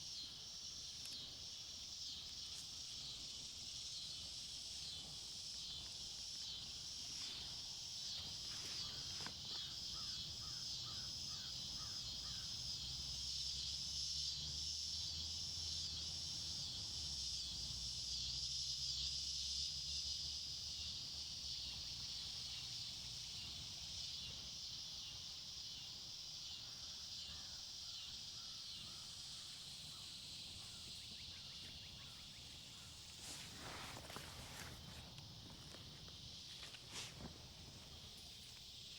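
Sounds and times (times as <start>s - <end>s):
high insect drone: 0.0s - 38.9s
brief rustle: 33.1s - 35.8s.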